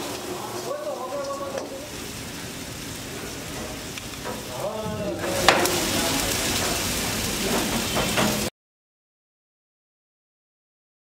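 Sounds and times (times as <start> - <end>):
vegetables sizzling in hot oil: 0.0 - 8.5.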